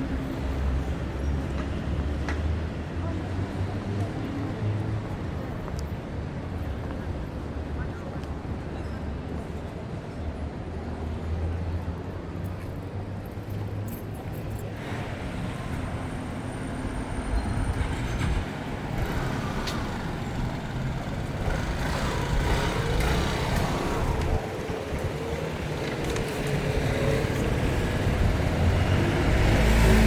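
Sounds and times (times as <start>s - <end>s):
street traffic rumbling: 0.0s - 30.0s.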